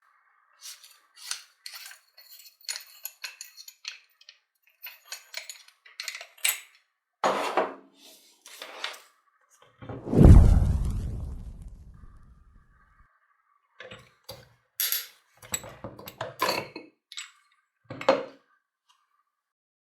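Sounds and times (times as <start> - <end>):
metal parts and tools clinking: 0.6 - 6.8, 13.9 - 17.4
loud deep ringing boom: 10.1 - 12.3.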